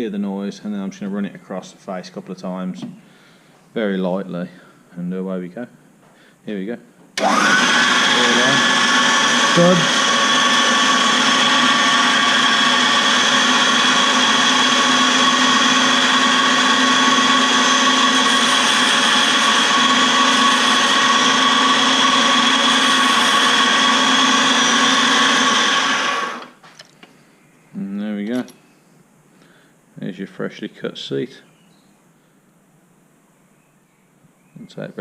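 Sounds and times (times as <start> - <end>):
valve refacer motor whine: 7.2 - 8.7, 9.5 - 26.6
stone grinding metal valve: 17.0 - 24.7.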